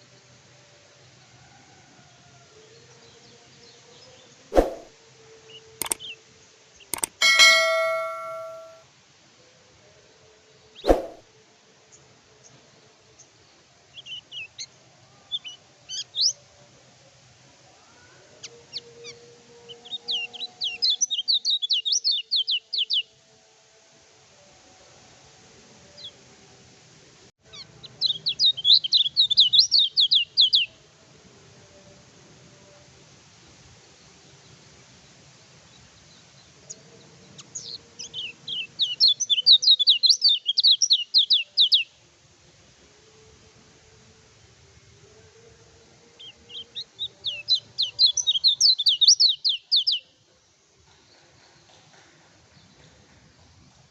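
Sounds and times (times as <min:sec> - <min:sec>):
songbird singing: 0:05.8 - 0:06.1, 0:36.1 - 0:41.9, 0:46.2 - 0:50.0
bird chirping and singing: 0:47.2 - 0:50.0.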